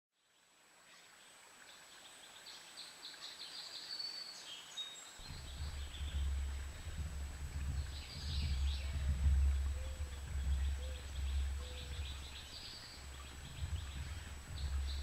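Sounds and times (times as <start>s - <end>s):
small birds chirping: 0.9s - 15.0s
low rumble: 5.2s - 15.0s
thin steady high whine: 5.2s - 15.0s.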